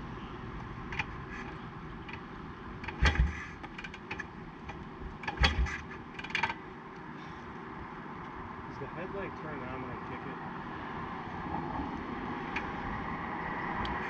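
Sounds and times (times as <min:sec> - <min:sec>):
motorcycle engine kicked over: 0:02.8 - 0:06.6.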